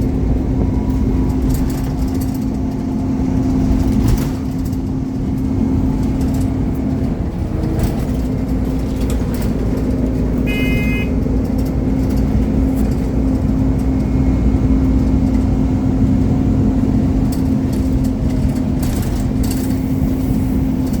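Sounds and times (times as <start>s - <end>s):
bus diesel engine running: 0.0s - 21.0s
rattles and clicks: 0.0s - 21.0s
brief high-pitched tone: 10.5s - 11.1s.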